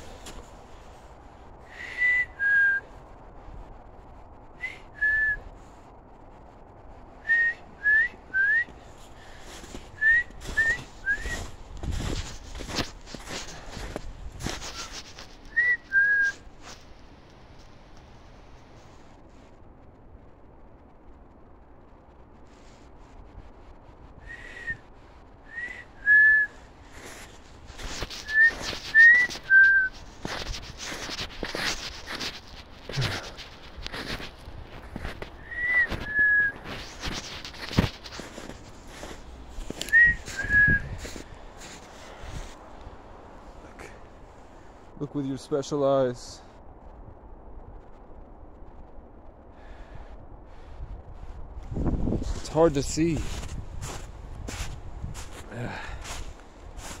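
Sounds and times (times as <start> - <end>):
rustling and crackling: 0.0 - 1.6, 8.7 - 19.8, 26.6 - 44.3, 50.6 - 57.0
person whistling short notes: 10.0 - 11.5, 14.5 - 16.5, 27.9 - 31.2, 35.3 - 38.0, 39.7 - 41.2.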